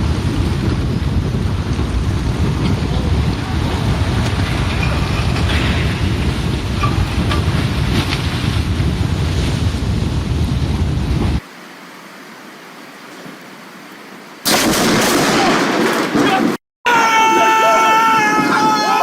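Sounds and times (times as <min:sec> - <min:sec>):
wind buffeting microphone: 0:00.0 - 0:11.4
mudslide rumbling: 0:00.0 - 0:11.5, 0:14.4 - 0:19.0.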